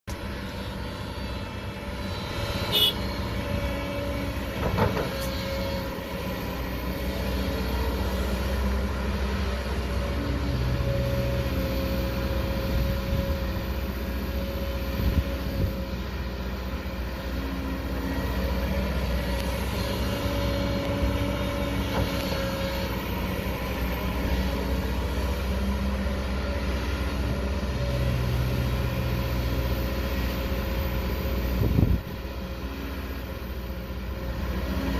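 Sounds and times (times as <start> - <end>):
excavator diesel engine running: 0.0 - 34.9
hydraulic whine: 0.1 - 34.9.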